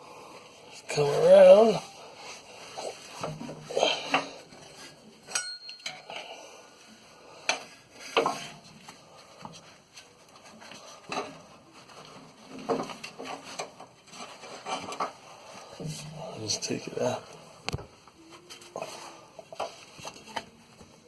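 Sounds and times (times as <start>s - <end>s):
metallic clinks and knocks: 5.3s - 6.2s.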